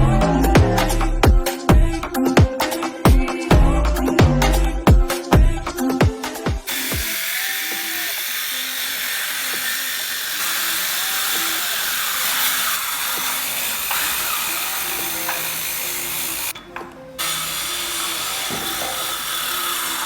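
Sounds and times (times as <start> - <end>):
electric woodworking tool running: 6.7 - 16.6, 17.2 - 20.0.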